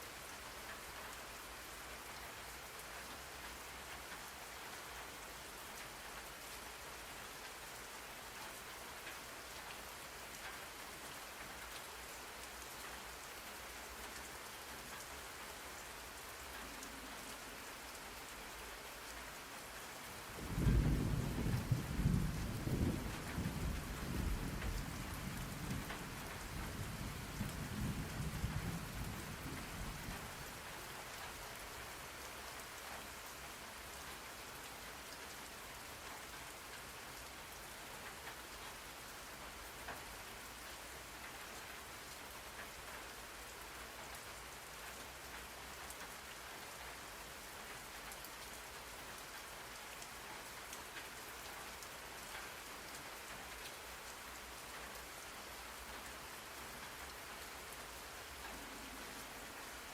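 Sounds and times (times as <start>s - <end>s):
rain falling on a surface: 0.0s - 59.9s
thunder rumble: 20.4s - 29.6s.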